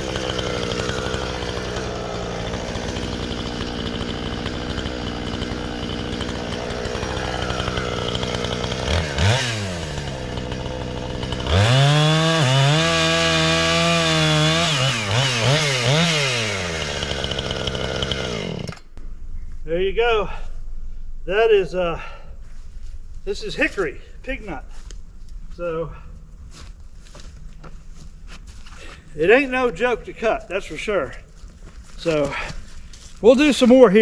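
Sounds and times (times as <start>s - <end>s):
chainsaw idling and revving: 0.0s - 18.9s, 31.9s - 34.0s.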